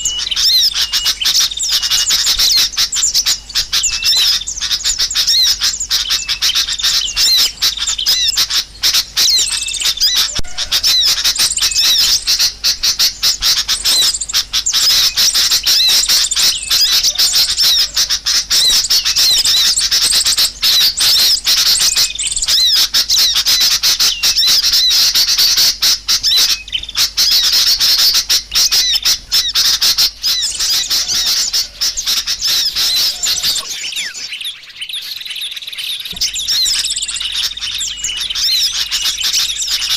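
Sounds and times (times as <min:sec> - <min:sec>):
small birds chattering: 0:00.0 - 0:39.9.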